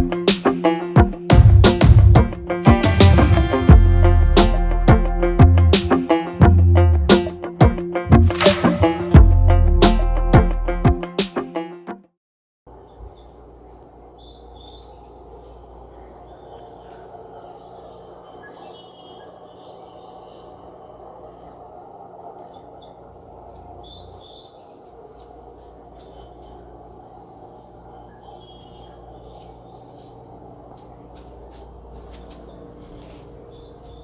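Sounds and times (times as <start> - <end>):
music: 0.0 - 12.1
steady background hum: 12.7 - 34.0
birds chirping and calling: 12.8 - 34.0.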